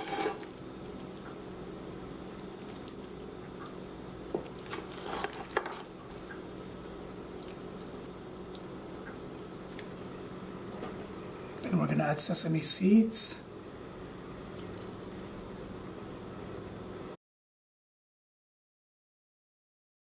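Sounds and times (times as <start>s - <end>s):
sauce bubbling in a pan: 0.0s - 10.6s
steady low hum: 0.0s - 17.2s.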